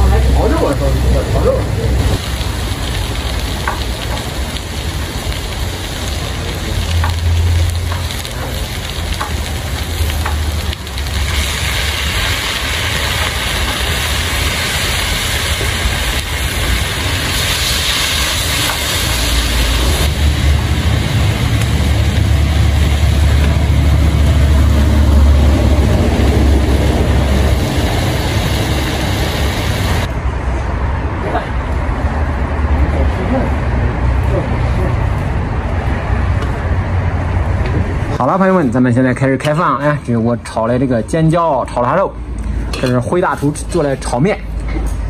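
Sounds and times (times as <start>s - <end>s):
cabbage stir-frying in a wok: 0.0s - 30.2s
steady low rumble: 0.0s - 38.2s.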